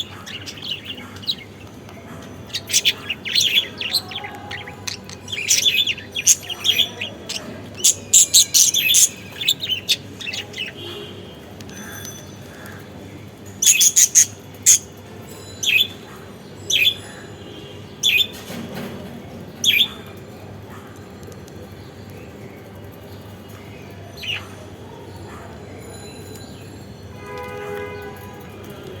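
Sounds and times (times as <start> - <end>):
budgerigars chirping: 0.0 - 1.6, 2.4 - 10.8, 13.6 - 14.9.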